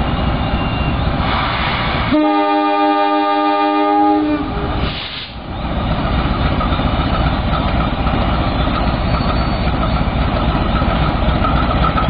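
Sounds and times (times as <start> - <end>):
locomotive horn: 2.1 - 4.8.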